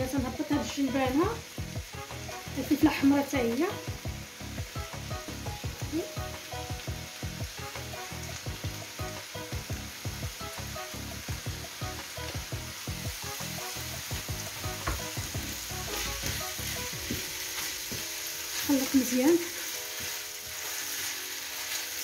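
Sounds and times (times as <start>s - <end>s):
rice sizzling in a frying pan: 0.0s - 22.0s
wooden spoon stirring: 15.8s - 22.0s.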